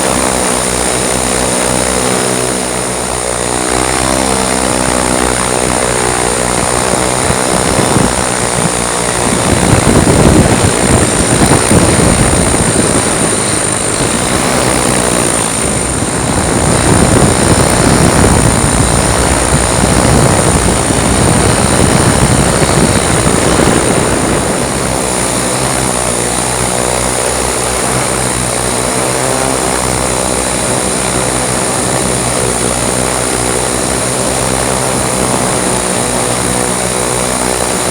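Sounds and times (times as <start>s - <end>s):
multirotor drone buzzing: 0.0s - 37.9s
uneven rushing noise: 4.9s - 27.1s.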